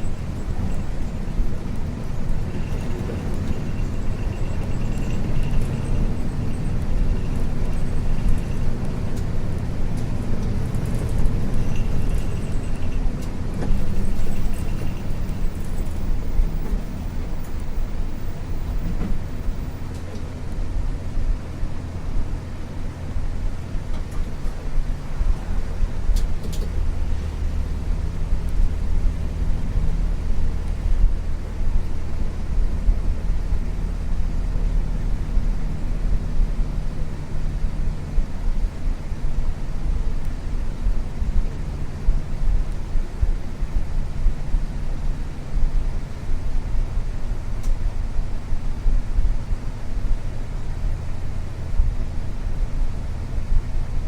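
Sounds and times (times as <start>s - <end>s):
bus diesel engine drone: 0.0s - 54.0s
road noise: 0.0s - 54.0s
light clicks and rattles: 25.3s - 27.8s.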